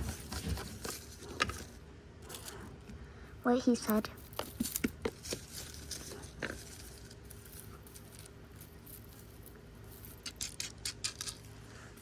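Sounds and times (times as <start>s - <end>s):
low background hum: 0.0s - 12.0s
toy figures clicking and tapping: 10.0s - 11.5s.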